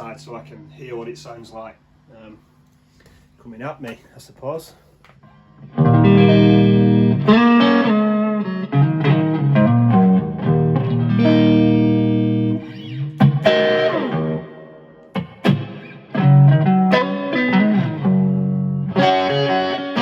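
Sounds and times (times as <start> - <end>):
electric guitar strumming chords: 5.6 - 20.0.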